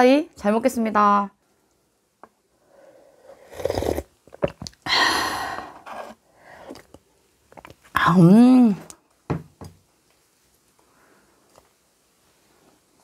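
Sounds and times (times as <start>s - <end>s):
person slurping noodles: 3.0s - 4.1s.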